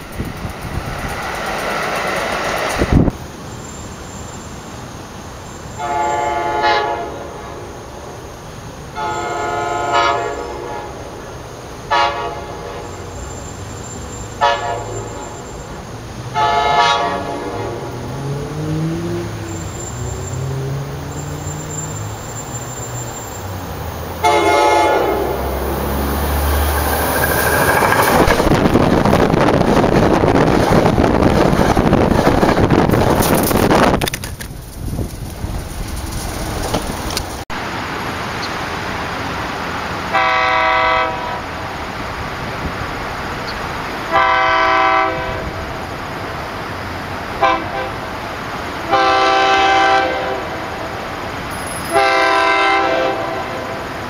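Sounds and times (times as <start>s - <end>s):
rumble of wheels on rail: 0.0s - 54.0s
train multi-tone horn blasts: 5.8s - 7.6s, 8.9s - 11.0s, 11.9s - 13.2s, 14.4s - 15.4s, 16.3s - 17.9s, 24.2s - 28.2s, 40.1s - 41.6s, 44.1s - 45.7s, 47.4s - 48.1s, 48.9s - 50.8s, 51.8s - 53.9s.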